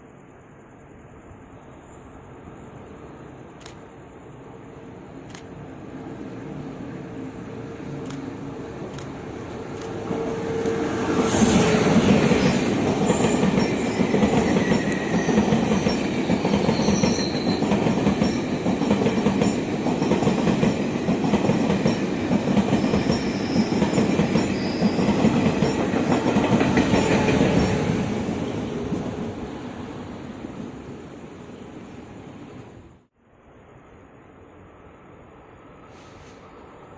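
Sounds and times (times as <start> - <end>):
train wheels clattering over rails: 8.9 - 29.2.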